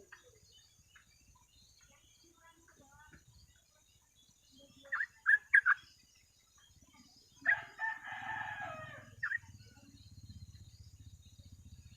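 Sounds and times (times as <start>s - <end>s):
rooster crowing: 7.5s - 9.3s.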